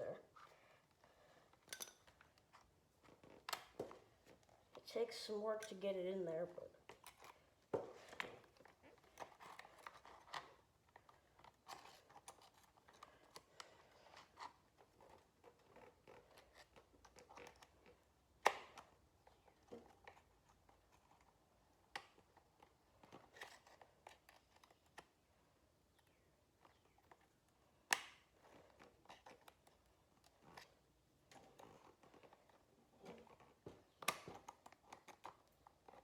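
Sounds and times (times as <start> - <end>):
small clicks of parts handled: 1.5 - 4.8.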